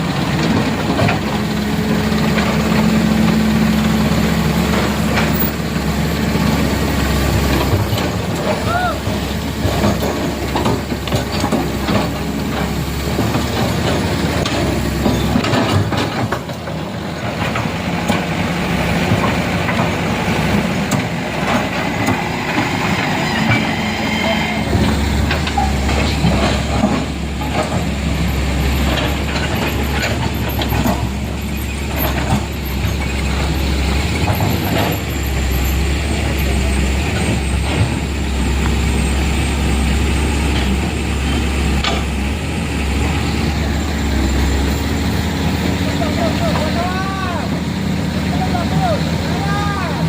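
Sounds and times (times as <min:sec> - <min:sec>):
heavy vehicle engine rumbling: 0:00.0 - 0:50.0.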